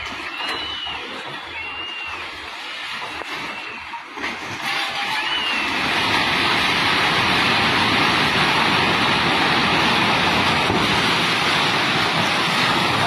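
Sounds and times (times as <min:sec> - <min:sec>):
rushing river water: 0:00.0 - 0:13.0.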